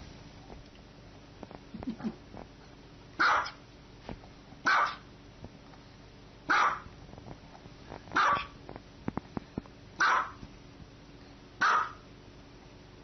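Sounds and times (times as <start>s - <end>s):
dog barking: 3.2s - 3.6s, 4.6s - 5.1s, 6.5s - 6.9s, 8.2s - 8.6s, 10.0s - 10.4s, 11.6s - 12.0s.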